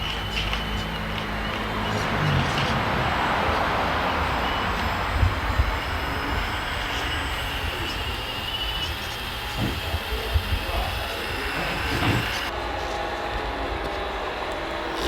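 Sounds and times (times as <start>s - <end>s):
thin high whine: 0.0s - 15.0s
mechanical hiss: 1.9s - 12.5s.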